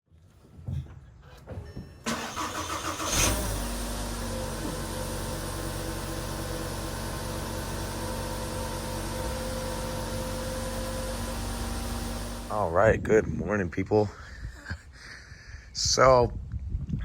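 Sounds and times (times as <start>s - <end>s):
car engine cranking: 2.0s - 12.5s
car engine starting and idling: 2.0s - 12.6s.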